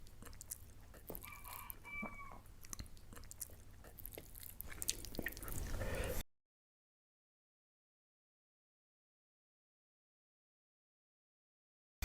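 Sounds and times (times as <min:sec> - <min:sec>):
chicken calling: 0:01.1 - 0:02.5.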